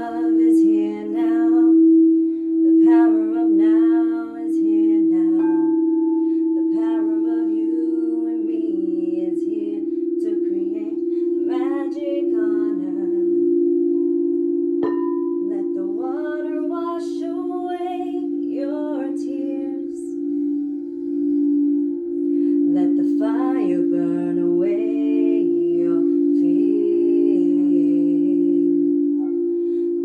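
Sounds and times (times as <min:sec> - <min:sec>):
person singing wordless melody: 0:00.0 - 0:30.0
singing bowls humming: 0:00.0 - 0:30.0
singing bowl strike: 0:05.4 - 0:27.0.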